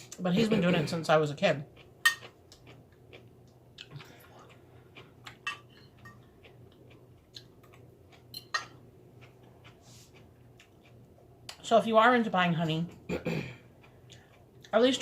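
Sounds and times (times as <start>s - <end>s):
soft chewing: 1.6s - 11.7s, 12.4s - 15.0s
utensils clinking against dishes: 8.3s - 8.8s.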